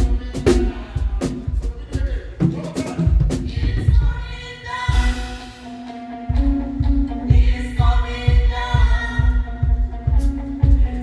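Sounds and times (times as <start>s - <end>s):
live band music: 0.0s - 11.0s
cymbals: 4.9s - 9.4s.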